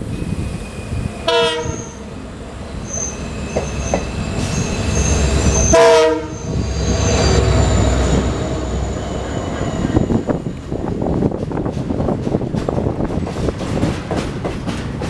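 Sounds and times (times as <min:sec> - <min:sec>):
freight train passing close: 0:00.0 - 0:15.0
train rumble and wheel noise: 0:00.0 - 0:15.0
diesel locomotive horn blast: 0:01.2 - 0:02.1, 0:05.5 - 0:06.6.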